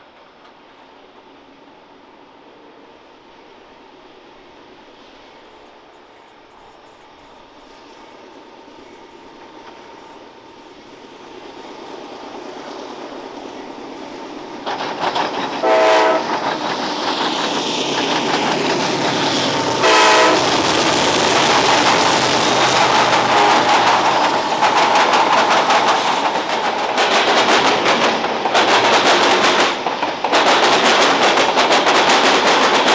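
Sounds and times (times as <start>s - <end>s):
freight train rumble: 0.0s - 32.9s
locomotive air horn blasts: 15.6s - 16.3s, 19.8s - 20.5s, 23.2s - 23.9s
wheels clattering over rail joints: 16.3s - 32.9s.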